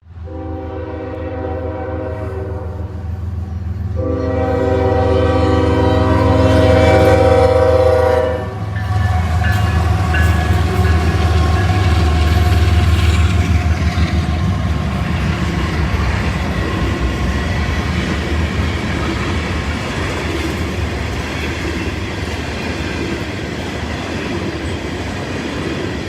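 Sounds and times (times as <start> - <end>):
train engines rumbling: 0.0 - 26.0
locomotive air horn blasts: 0.2 - 3.1, 3.9 - 10.8.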